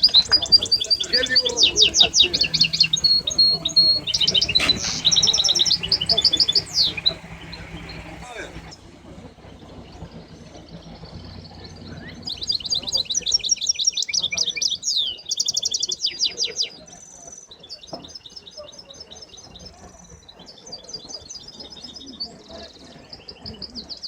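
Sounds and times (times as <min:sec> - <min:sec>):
songbirds trilling: 0:00.0 - 0:24.0.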